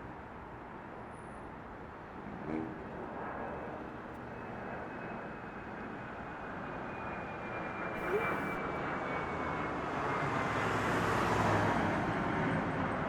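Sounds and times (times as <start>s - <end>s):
faint high engine whine: 0.2s - 10.3s
brief pitched sound: 8.0s - 8.6s.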